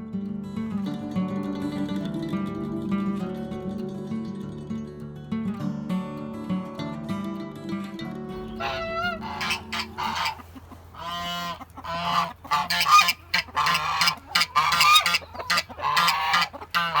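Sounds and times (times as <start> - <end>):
geese honking: 8.3 - 17.0.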